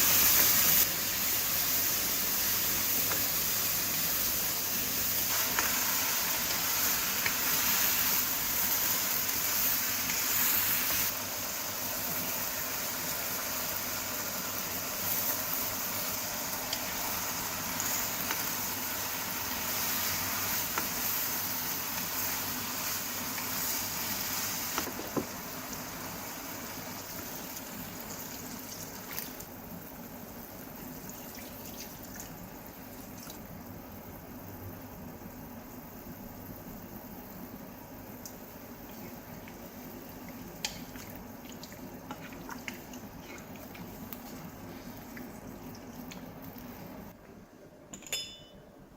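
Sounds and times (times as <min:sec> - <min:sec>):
water running: 0:03.8 - 0:29.8, 0:30.4 - 0:33.8, 0:38.2 - 0:47.1.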